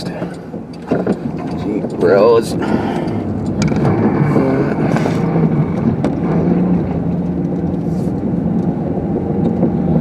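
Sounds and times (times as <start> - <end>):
car engine and road drone: 0.0 - 10.0.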